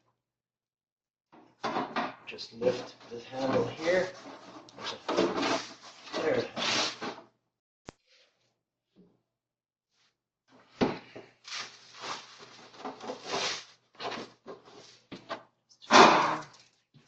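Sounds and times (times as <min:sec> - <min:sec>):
plastic scraping and rustling: 0:02.6 - 0:07.2, 0:11.4 - 0:15.4
plastic basket clatter: 0:12.0 - 0:14.7.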